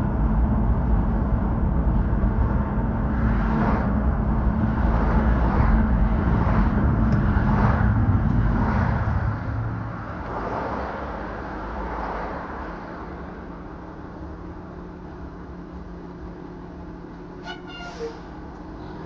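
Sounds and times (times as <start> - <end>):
motor vehicle passing: 3.1 - 12.8.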